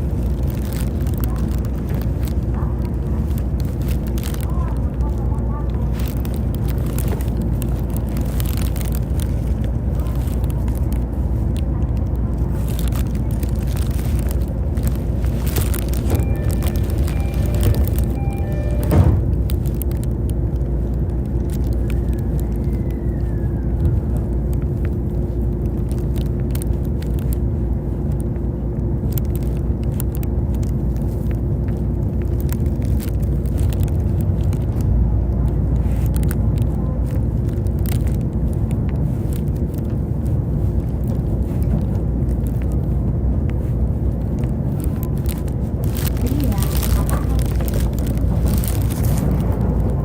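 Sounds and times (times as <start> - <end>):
clicks and crackles: 0.0 - 50.0
constant electric hum: 0.0 - 50.0
train wheels rumbling on rail: 0.0 - 50.0
falling whine: 14.2 - 24.3
thump: 18.9 - 19.3.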